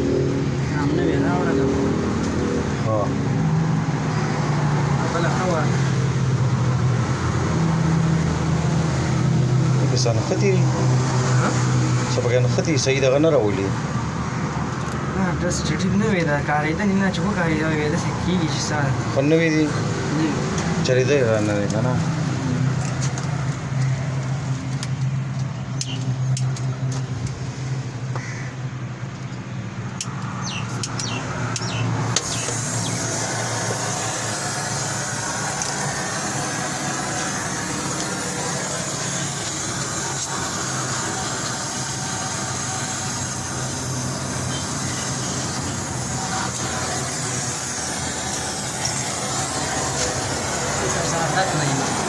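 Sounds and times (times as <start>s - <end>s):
car engine humming: 0.0s - 52.0s
steady hiss: 32.2s - 52.0s.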